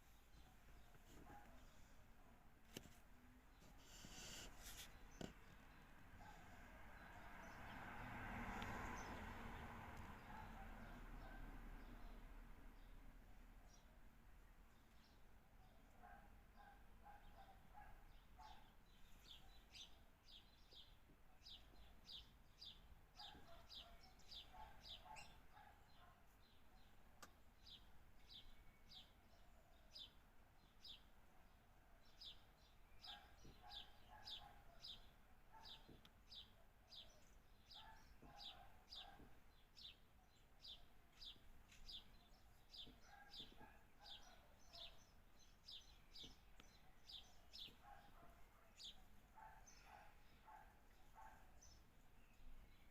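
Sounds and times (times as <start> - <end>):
birds chirping: 10.0 - 12.2, 13.7 - 52.9.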